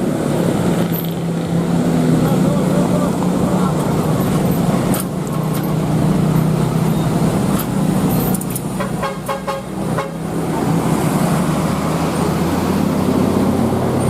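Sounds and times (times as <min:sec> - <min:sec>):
traffic engines running: 0:00.0 - 0:14.0
vehicle horn short beeps: 0:08.8 - 0:10.2.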